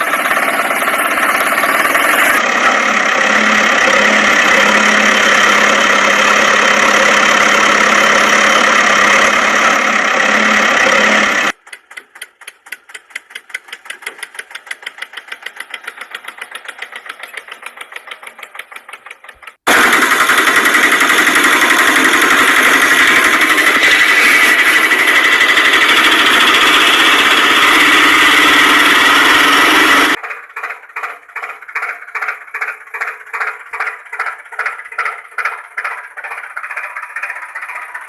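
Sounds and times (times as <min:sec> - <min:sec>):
toy vehicle motor running: 0:00.0 - 0:38.0
rapid clicking: 0:11.3 - 0:38.0.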